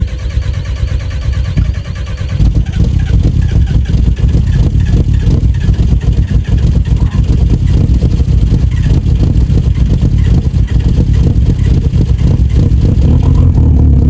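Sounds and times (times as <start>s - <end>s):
diesel engine running unevenly: 0.0s - 14.0s
starter motor cranking: 0.0s - 14.0s.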